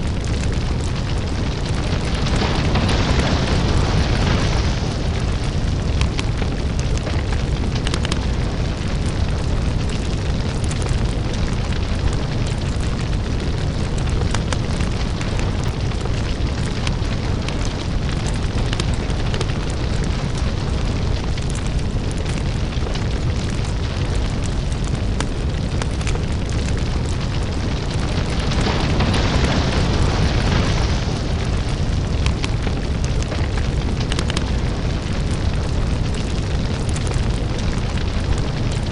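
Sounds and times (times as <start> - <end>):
lava fire rumble and crackles: 0.0 - 38.9.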